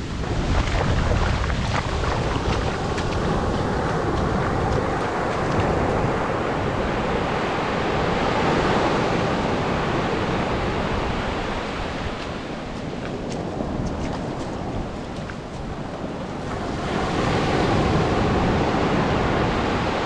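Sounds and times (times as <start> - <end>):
surf breaking on beach: 0.0 - 20.0
wind rumbling on microphone: 0.0 - 20.0.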